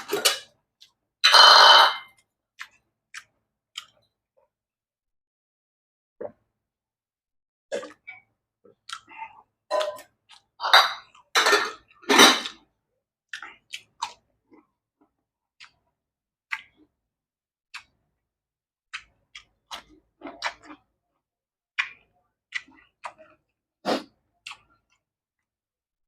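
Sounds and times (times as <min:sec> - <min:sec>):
soft mouth clicks and smacks: 0:02.6 - 0:04.1, 0:08.8 - 0:09.3, 0:13.3 - 0:14.7, 0:15.6 - 0:16.9, 0:17.7 - 0:18.0, 0:18.9 - 0:20.8, 0:21.8 - 0:23.5, 0:24.4 - 0:25.1.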